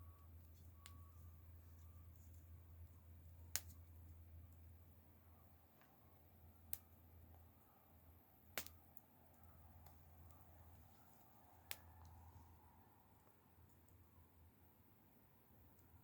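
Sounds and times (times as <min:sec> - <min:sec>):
faint low hum: 0:00.0 - 0:16.0
campfire crackling: 0:00.2 - 0:16.0
wood fire popping: 0:02.1 - 0:04.8, 0:05.8 - 0:07.4, 0:08.4 - 0:12.6.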